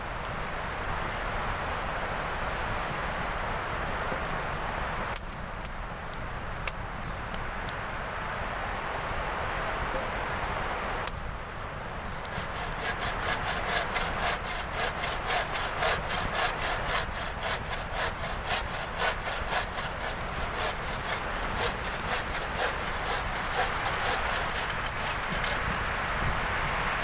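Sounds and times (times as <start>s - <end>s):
hand saw cutting wood: 12.0s - 25.8s.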